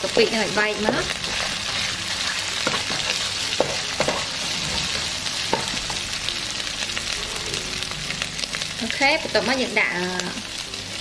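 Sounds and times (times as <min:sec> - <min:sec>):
paste and chillies sizzling in oil: 0:00.0 - 0:11.0
spatula scraping and tapping pan: 0:00.8 - 0:06.0.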